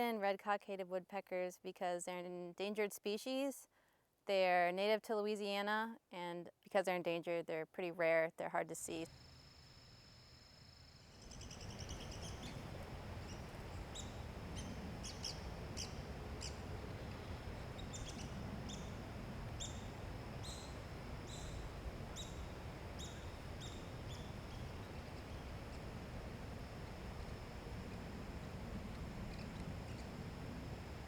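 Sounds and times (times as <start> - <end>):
woodpecker calling: 11.1 - 30.2.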